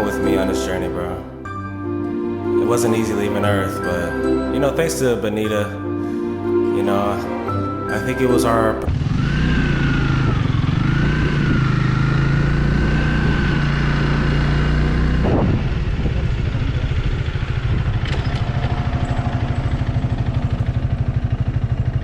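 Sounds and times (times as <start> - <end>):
motorcycle engine running: 8.9 - 22.0.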